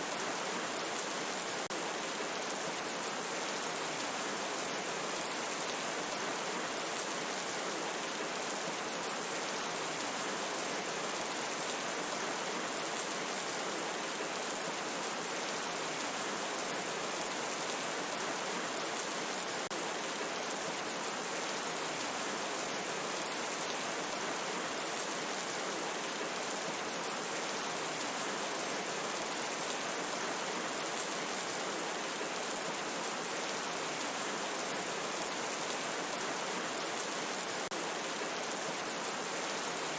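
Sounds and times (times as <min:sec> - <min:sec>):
rain falling in a forest: 0:00.0 - 0:39.9.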